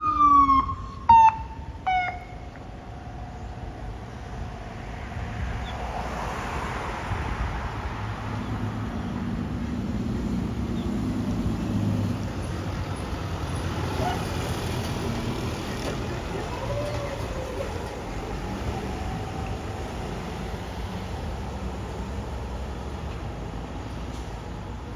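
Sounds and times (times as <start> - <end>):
emergency vehicle horn blasts: 0.0 - 2.4
large vehicle engine approaching: 0.0 - 24.9.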